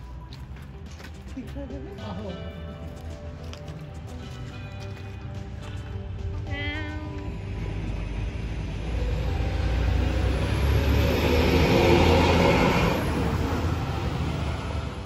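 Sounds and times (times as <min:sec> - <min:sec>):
vehicle passing by: 0:07.3 - 0:15.0.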